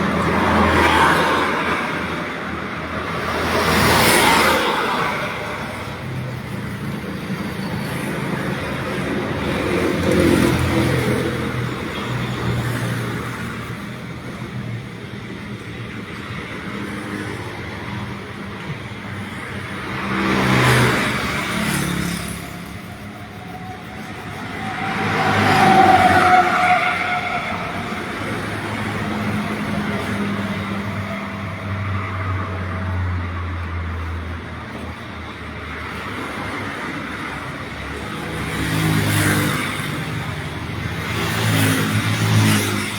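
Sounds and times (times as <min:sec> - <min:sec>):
background traffic: 0:00.0 - 0:42.9
vehicles passing by: 0:00.0 - 0:42.9.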